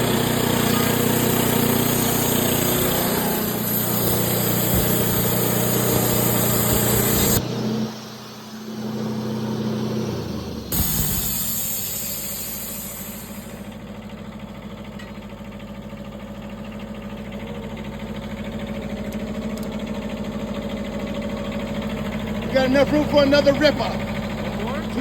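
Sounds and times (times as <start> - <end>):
sawmill engine running: 0.0 - 25.0
hiss: 0.9 - 7.4, 10.7 - 13.8.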